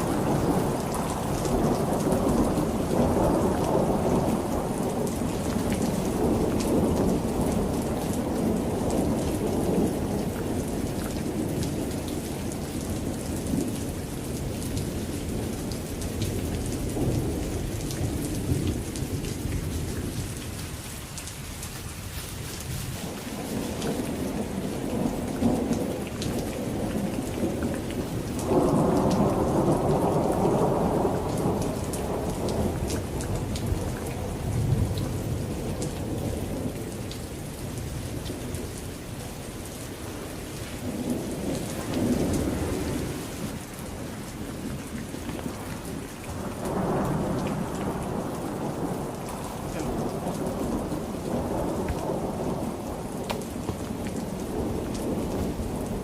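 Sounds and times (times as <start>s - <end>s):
heavy rain: 0.0s - 56.0s
rolling thunder: 23.0s - 38.7s, 40.2s - 56.0s.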